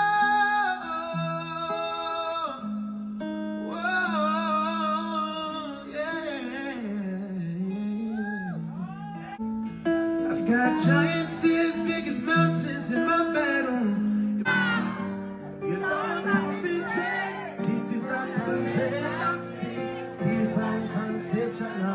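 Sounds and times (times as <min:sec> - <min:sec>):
person singing: 0:00.0 - 0:03.0, 0:10.2 - 0:21.9
acoustic guitar: 0:00.0 - 0:21.9.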